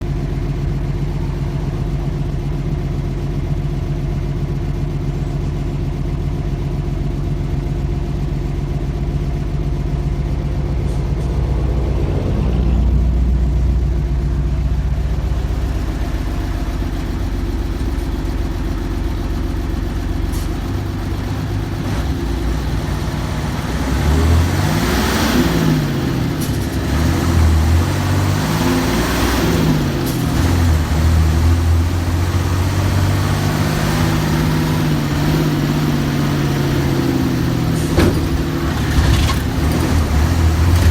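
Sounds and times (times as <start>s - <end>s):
diesel bus engine idling: 0.0s - 40.9s
engine revving: 10.7s - 14.8s, 20.3s - 40.9s.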